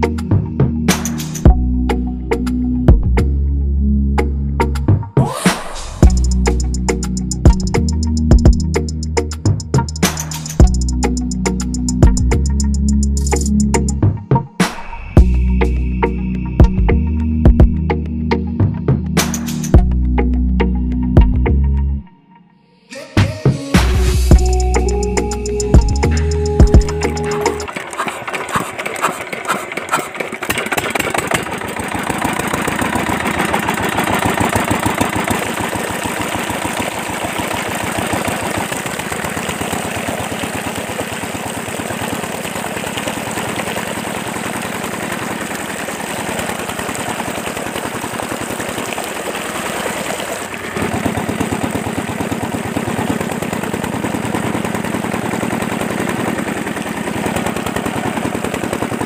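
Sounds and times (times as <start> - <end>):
model diesel engine putter: 6.0 - 14.0, 24.3 - 59.0.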